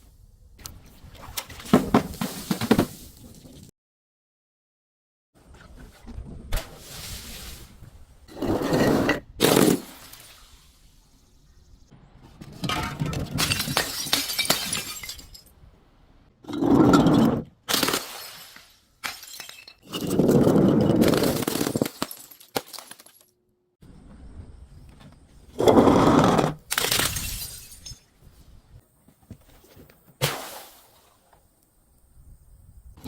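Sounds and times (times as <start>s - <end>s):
glass shattering and crunching: 12.7s - 15.6s, 17.7s - 23.3s, 26.7s - 28.1s.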